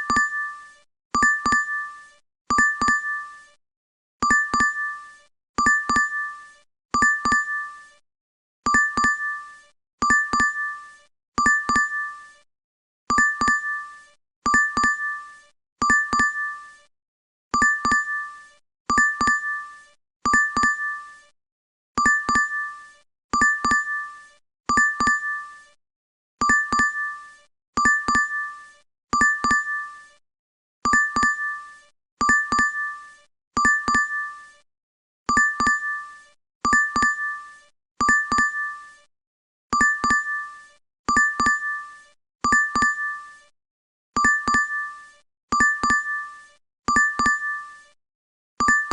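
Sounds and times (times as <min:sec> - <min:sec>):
two-tone notification chime: 0:39.8 - 0:40.3, 0:44.2 - 0:44.8.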